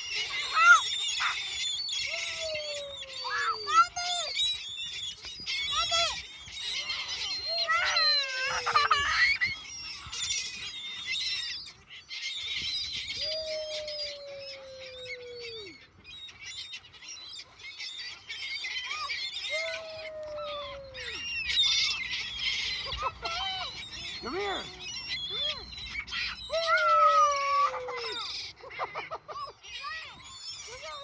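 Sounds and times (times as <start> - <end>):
seagulls squawking: 0.0 - 31.0
long falling gull calls: 0.2 - 4.4, 6.9 - 9.6, 13.1 - 15.8, 18.9 - 29.3.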